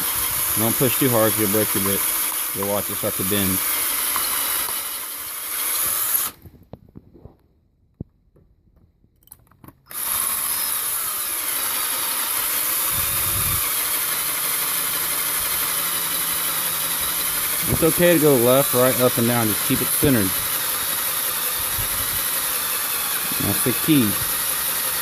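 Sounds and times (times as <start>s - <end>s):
power drill boring into metal: 0.0s - 6.4s, 9.9s - 25.0s.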